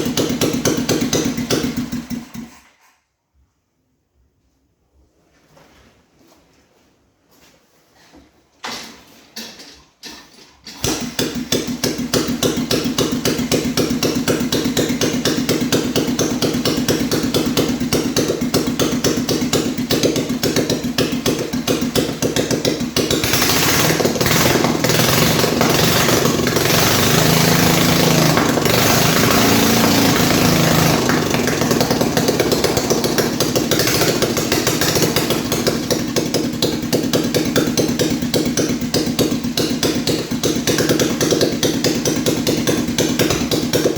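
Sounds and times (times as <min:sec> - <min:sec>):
single-cylinder engine running: 0:00.0 - 0:02.7, 0:10.8 - 0:43.9.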